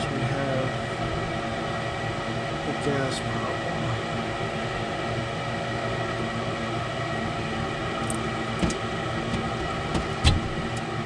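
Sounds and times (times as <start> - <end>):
furnace fan humming: 0.0 - 11.0
sharp clicks and knocks: 8.0 - 10.6.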